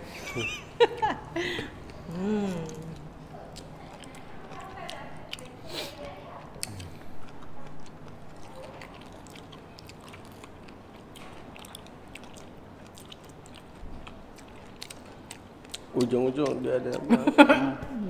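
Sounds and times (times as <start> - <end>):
biting and chewing fruit: 0.9 - 17.3
wet mouth clicks: 6.6 - 10.6.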